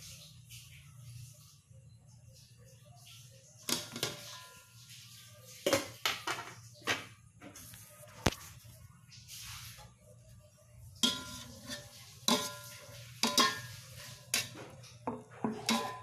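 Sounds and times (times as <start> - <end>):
metal utensils clattering on pots: 3.2 - 7.6, 10.8 - 16.0.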